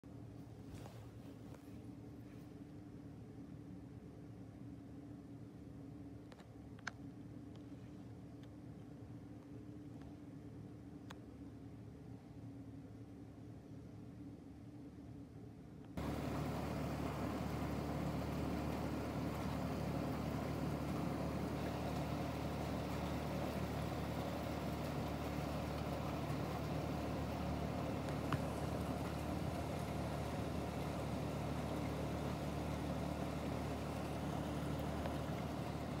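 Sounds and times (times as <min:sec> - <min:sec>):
low steady hum: 0:00.0 - 0:36.0
small click: 0:06.3 - 0:07.7
steady rain: 0:16.0 - 0:36.0.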